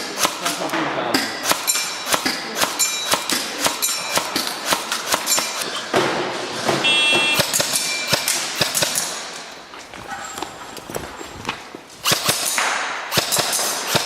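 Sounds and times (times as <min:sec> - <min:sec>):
sharp metallic clicks: 0:00.0 - 0:05.7, 0:07.3 - 0:09.6, 0:12.0 - 0:14.0.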